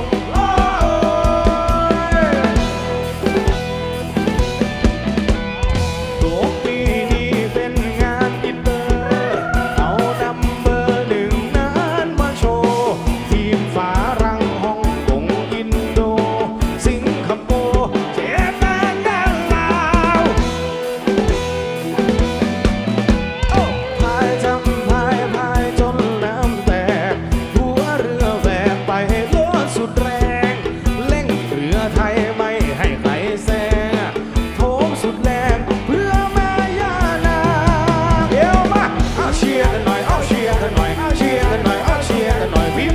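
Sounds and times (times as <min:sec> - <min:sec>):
wavering melody line: 0:00.0 - 0:12.7, 0:18.4 - 0:27.2
drum kit beat: 0:00.0 - 0:42.9
guitar: 0:00.0 - 0:42.9.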